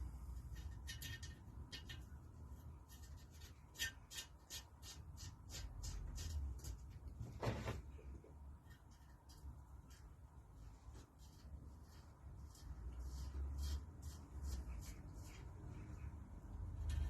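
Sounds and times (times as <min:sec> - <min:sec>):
small metal parts clicking: 0:00.6 - 0:02.1.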